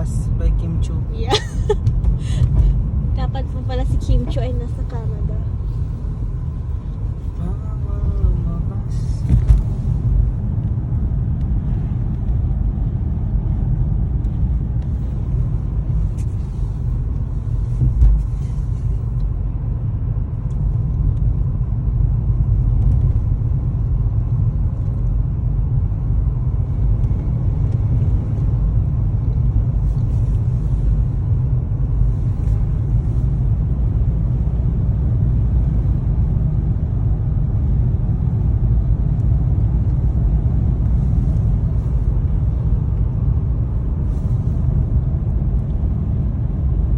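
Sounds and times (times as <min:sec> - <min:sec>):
car tyres and engine rumble: 0:00.0 - 0:46.9
car bump: 0:09.2 - 0:09.8.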